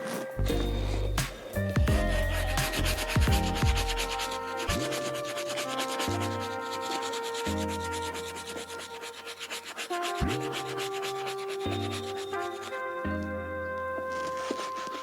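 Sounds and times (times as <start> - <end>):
music with deep bass: 0.4 - 5.1
brush scrubbing leather: 2.4 - 12.4.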